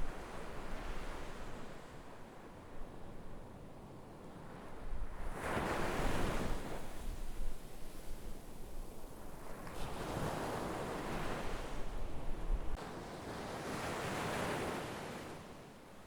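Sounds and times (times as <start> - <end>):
sea waves breaking on shore: 12.8 - 15.7.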